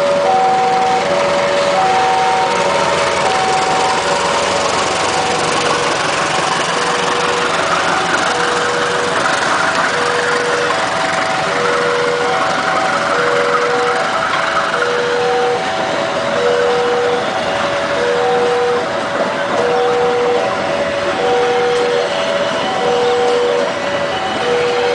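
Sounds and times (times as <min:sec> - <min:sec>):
engine noise: 0:00.0 - 0:24.9
level crossing warning alarm: 0:00.0 - 0:24.9.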